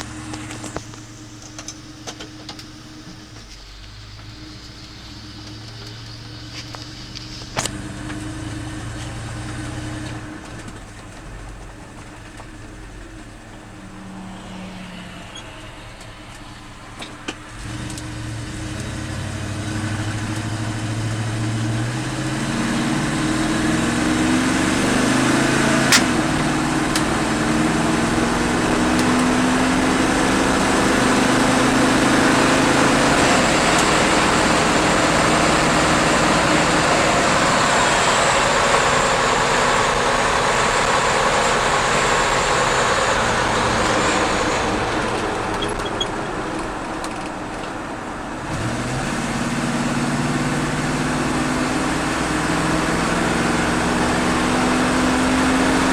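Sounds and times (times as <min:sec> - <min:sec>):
pickup truck engine: 0:00.0 - 0:55.9
road and wind noise: 0:00.0 - 0:55.9
sharp click: 0:25.9 - 0:26.2.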